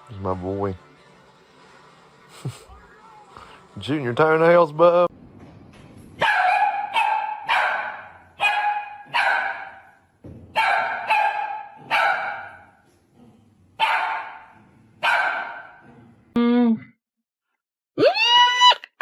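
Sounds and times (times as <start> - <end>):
dog barking: 6.2 - 12.8, 13.8 - 15.8.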